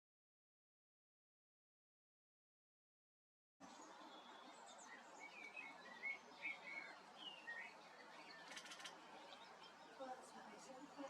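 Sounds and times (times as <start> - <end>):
songbirds chirping: 3.6 - 11.0.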